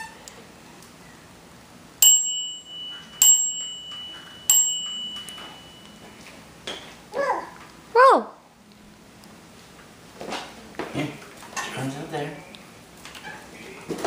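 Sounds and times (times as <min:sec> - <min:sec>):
bright chime dings: 0:02.0 - 0:06.3.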